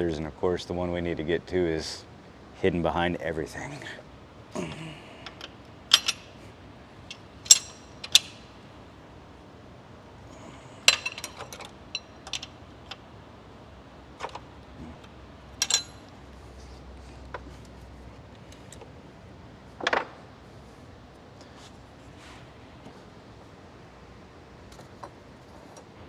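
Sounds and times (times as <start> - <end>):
hand tools clinking on metal: 4.6 - 8.6, 10.3 - 13.0, 14.2 - 16.2.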